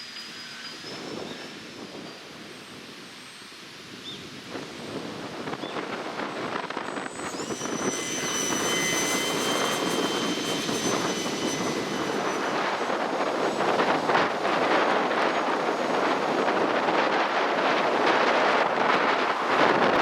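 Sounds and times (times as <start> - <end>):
wind on microphone: 0.8 - 20.0
model airplane motor whining: 6.2 - 17.0.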